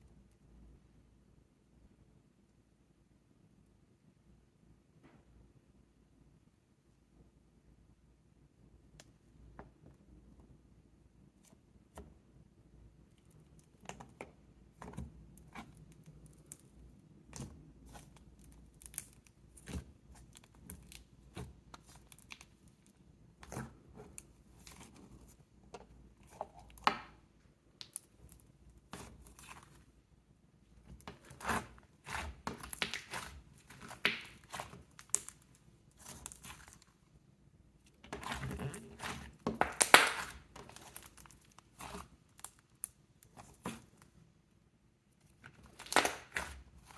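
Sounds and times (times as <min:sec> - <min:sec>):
slime clicking and crackling: 0:17.3 - 0:22.8, 0:30.9 - 0:36.8, 0:38.0 - 0:43.8, 0:45.4 - 0:46.9.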